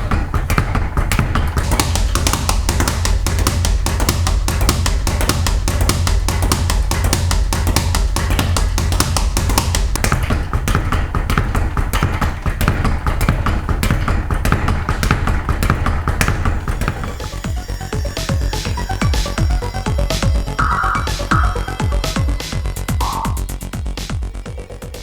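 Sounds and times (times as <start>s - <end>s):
music with steady bass: 0.0s - 11.4s, 14.5s - 25.0s
speed bag rattling: 0.0s - 17.6s.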